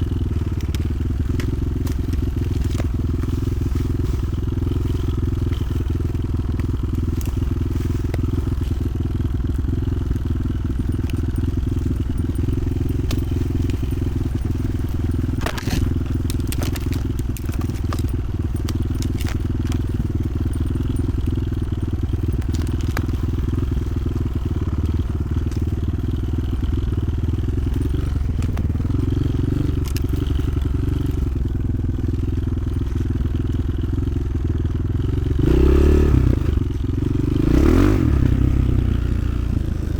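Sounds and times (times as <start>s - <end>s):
motorcycle engine rumble: 0.0s - 39.9s
sharp clicks and knocks: 10.8s - 23.9s.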